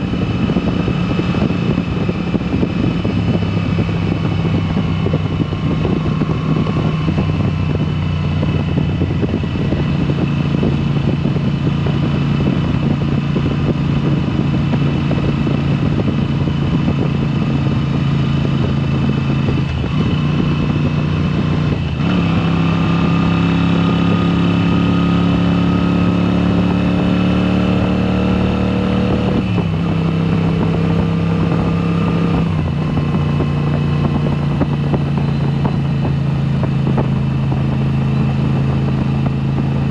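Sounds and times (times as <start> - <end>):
motorcycle engine under way: 0.0 - 39.9.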